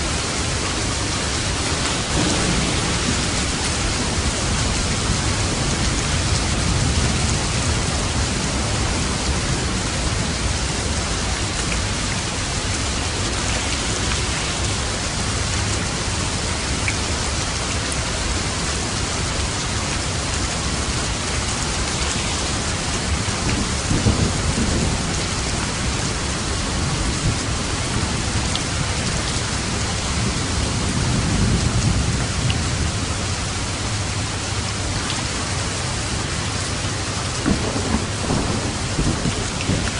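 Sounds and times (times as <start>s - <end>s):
rain on a roof: 0.0s - 39.9s
thunder rumbling: 0.1s - 16.0s, 21.8s - 34.1s, 36.1s - 39.9s.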